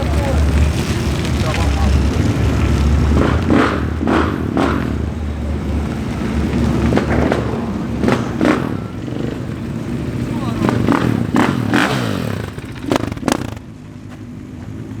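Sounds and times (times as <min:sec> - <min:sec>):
car engine rumbling: 0:00.0 - 0:15.0
sharp noise bursts: 0:06.8 - 0:13.7.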